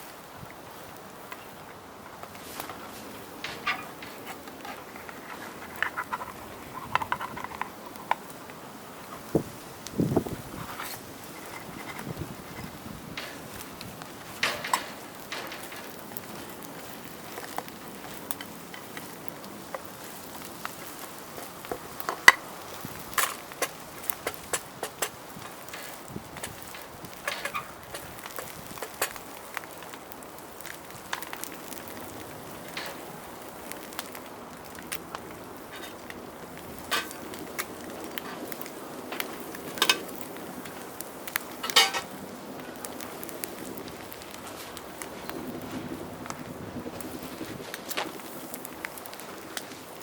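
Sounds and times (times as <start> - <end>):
campfire crackling: 0.0 - 50.0
sharp clicks and pops: 3.4 - 8.6, 9.3 - 42.2
food frying in a pan: 15.9 - 45.2.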